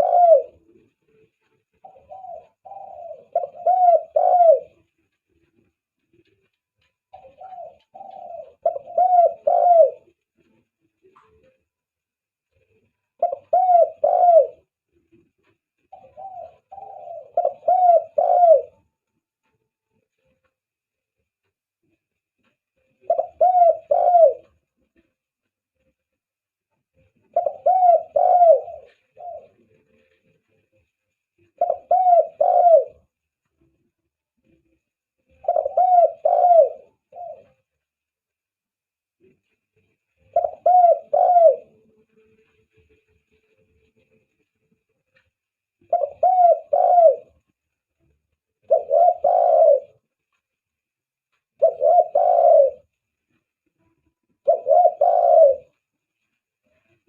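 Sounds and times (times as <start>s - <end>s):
dove cooing: 0.0s - 11.6s, 12.5s - 19.1s, 21.9s - 25.2s, 27.0s - 30.7s, 31.4s - 33.2s, 34.4s - 37.8s, 40.2s - 42.6s, 45.8s - 47.6s, 48.6s - 50.1s, 51.5s - 56.0s.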